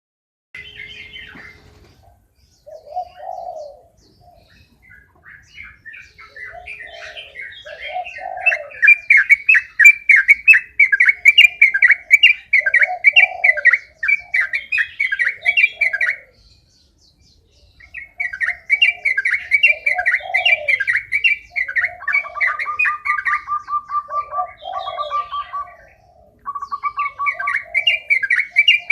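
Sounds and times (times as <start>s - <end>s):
low coo-like bird notes: 0.6s - 28.9s
bulbul singing chattering phrases: 2.6s - 16.7s, 17.7s - 28.9s
fast even bird trill: 5.4s - 16.3s, 26.4s - 28.9s.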